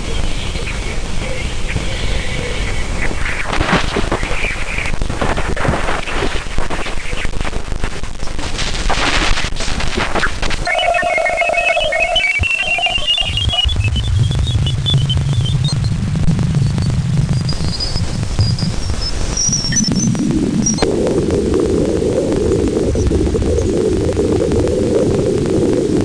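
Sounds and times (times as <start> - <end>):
crackling static with rapid clicks: 0.0 - 26.0
warbling whistle tones: 10.6 - 15.9
low hum: 10.6 - 26.0.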